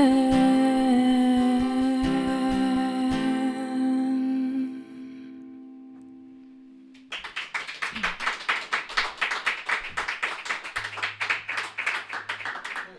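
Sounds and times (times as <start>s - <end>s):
guitar chord ringing out: 2.0s - 7.0s
audience applause: 7.1s - 12.9s.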